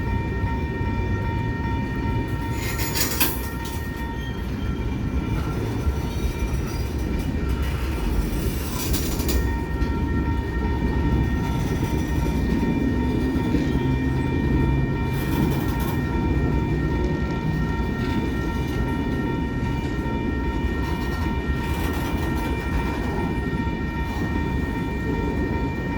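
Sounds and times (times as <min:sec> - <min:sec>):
steady ringing tone: 0:00.0 - 0:25.9
train wheels rumbling on rail: 0:00.0 - 0:25.9.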